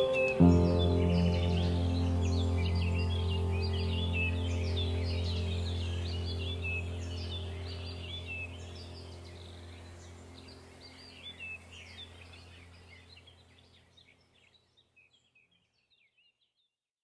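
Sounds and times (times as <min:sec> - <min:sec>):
steady low hum: 0:00.0 - 0:13.5
small birds chirping: 0:00.0 - 0:16.8.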